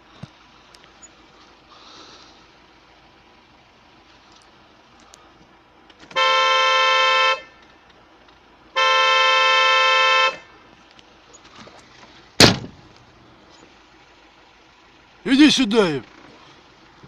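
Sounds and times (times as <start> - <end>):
vehicle horn blasts: 6.1 - 7.6, 8.7 - 10.5.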